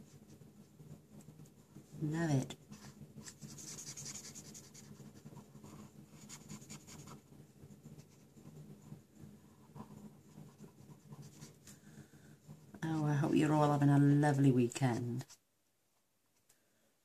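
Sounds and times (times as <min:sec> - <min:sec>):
steady low hum: 0:00.0 - 0:17.0
felt-tip marker scratching on card: 0:02.7 - 0:07.2.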